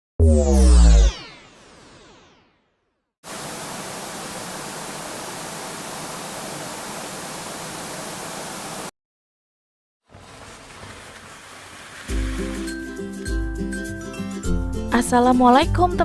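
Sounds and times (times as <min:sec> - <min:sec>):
static hiss: 0:03.3 - 0:08.9.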